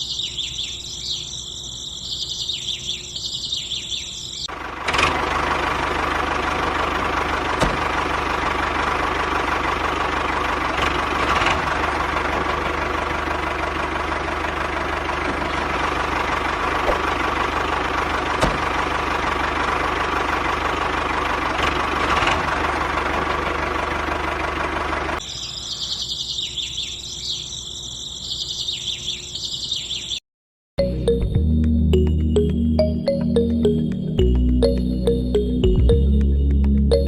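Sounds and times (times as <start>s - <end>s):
chirp-like calls: 0.0s - 4.5s, 25.2s - 30.2s
small machine rattling hum: 0.0s - 25.2s
steady high tone: 30.8s - 37.0s.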